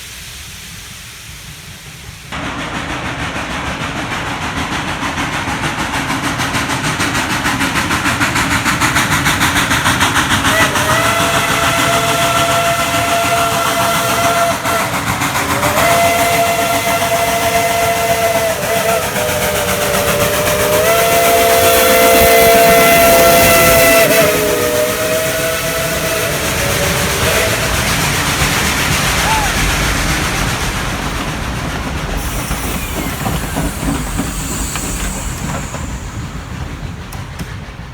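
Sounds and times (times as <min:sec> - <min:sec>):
steam locomotive exhaust chuffing: 0:00.0 - 0:37.9
steam chime whistle blasts: 0:10.5 - 0:15.0, 0:15.6 - 0:29.8, 0:32.2 - 0:37.4.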